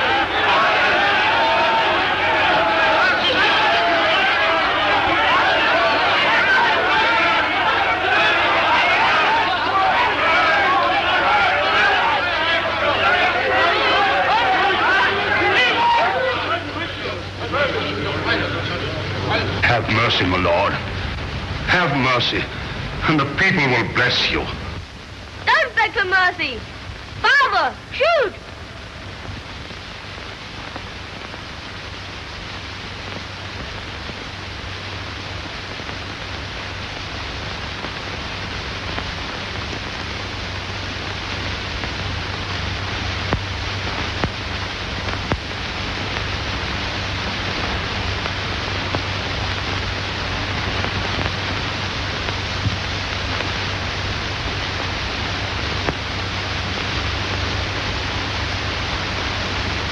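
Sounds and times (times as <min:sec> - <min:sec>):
film soundtrack hiss and hum: 0:00.0 - 0:59.9
sharp crackles: 0:19.1 - 0:59.9.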